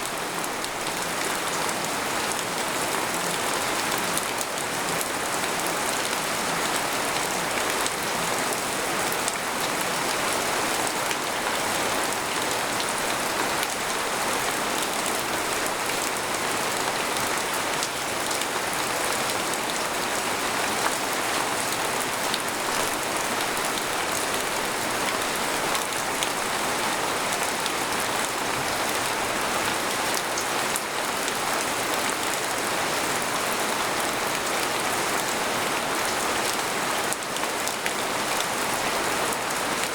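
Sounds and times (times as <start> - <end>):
rain on a tent: 0.0 - 39.9.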